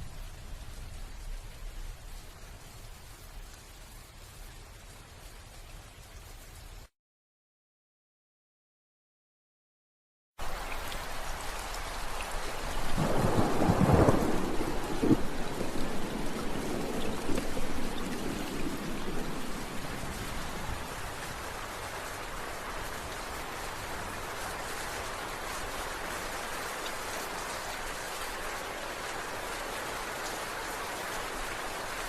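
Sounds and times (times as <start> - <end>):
steady rain: 0.0 - 6.9, 10.4 - 32.0
thunder rumbling: 12.9 - 21.5.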